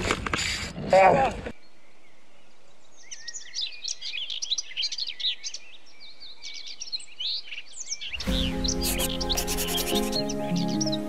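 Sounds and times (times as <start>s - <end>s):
birds chirping: 1.4s - 11.0s
music: 8.2s - 11.0s.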